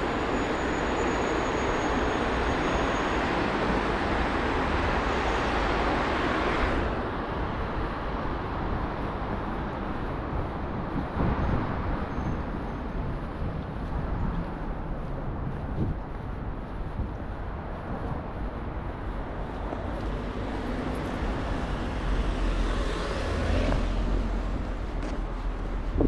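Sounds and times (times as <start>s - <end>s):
city traffic noise: 0.0s - 26.0s
passing vehicle rumble: 0.0s - 26.0s.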